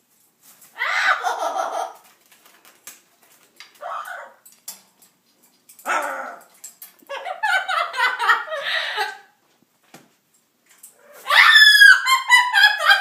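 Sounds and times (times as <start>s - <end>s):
parrots harsh calls: 0.8s - 2.0s, 3.8s - 4.4s, 11.0s - 12.4s.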